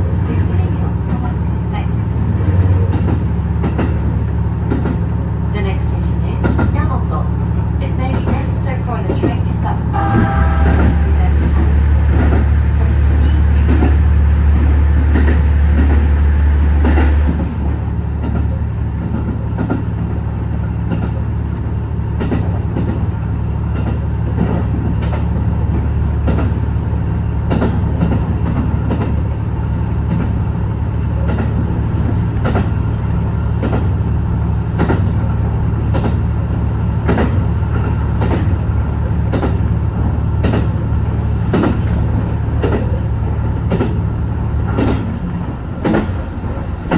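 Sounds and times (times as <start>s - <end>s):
railcar engine drone: 0.0s - 46.9s
wheels clicking over rail joints: 23.7s - 46.9s.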